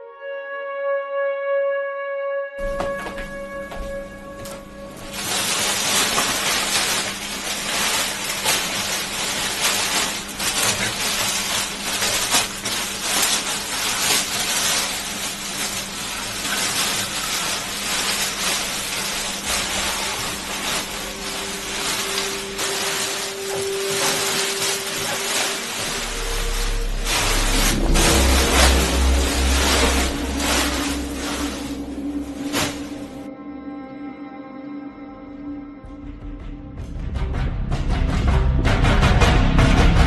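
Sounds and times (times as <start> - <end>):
packaging rustling and crinkling: 2.6 - 33.3
low hum: 2.6 - 38.8.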